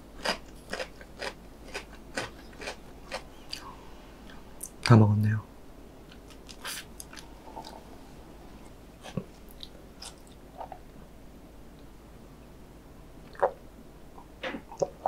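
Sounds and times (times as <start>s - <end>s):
person chewing noodles: 0.2s - 4.4s, 6.1s - 8.0s, 8.6s - 10.8s.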